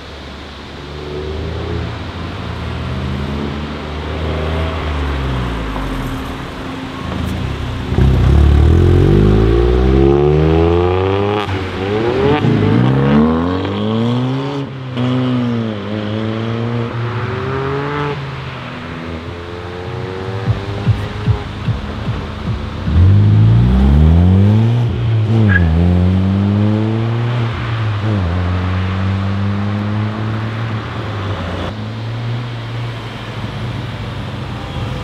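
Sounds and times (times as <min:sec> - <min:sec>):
car engine revving through upshifts: 0:07.2 - 0:32.1.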